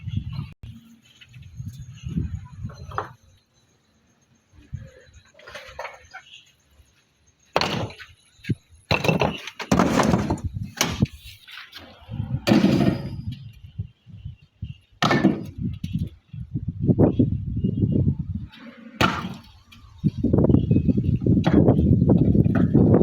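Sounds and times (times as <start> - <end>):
hard objects scraping: 8.9 - 13.5.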